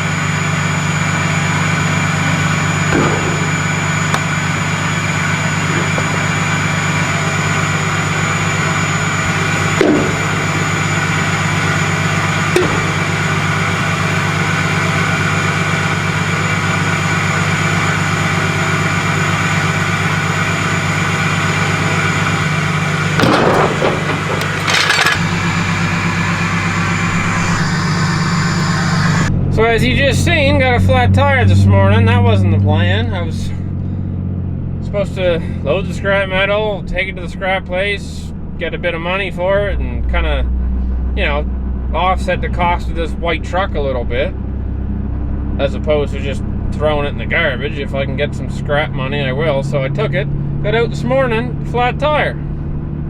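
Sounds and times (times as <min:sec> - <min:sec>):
truck engine humming: 0:00.0 - 0:37.6
knocks and rattles: 0:05.6 - 0:07.6, 0:12.6 - 0:13.3, 0:21.6 - 0:25.6.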